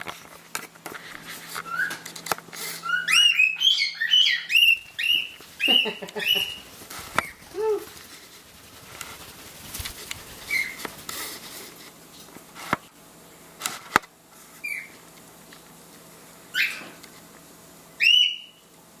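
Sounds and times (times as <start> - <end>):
cockatiel chirping calls: 2.8 - 7.4, 10.4 - 10.8, 14.6 - 14.9, 16.5 - 16.9, 18.0 - 18.6.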